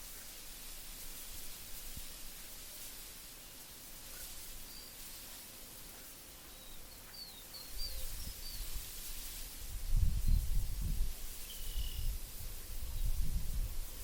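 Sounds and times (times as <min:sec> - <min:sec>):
bird chirping: 0:06.4 - 0:08.8, 0:11.4 - 0:12.1
wind gusting: 0:09.6 - 0:14.0.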